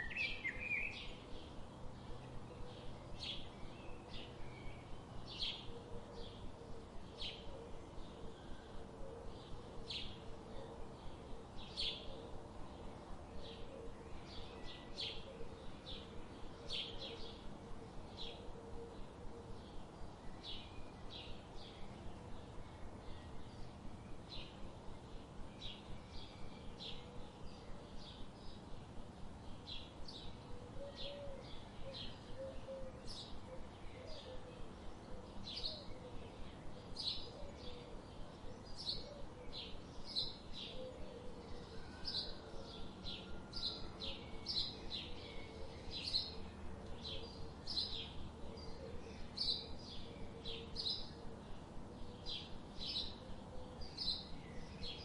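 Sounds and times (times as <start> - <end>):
background hiss: 0.0 - 55.0
small birds chirping: 0.0 - 55.0.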